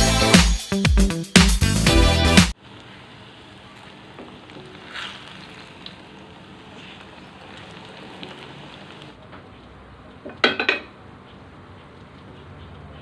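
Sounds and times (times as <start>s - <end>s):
food sizzling in hot oil: 2.5s - 9.2s.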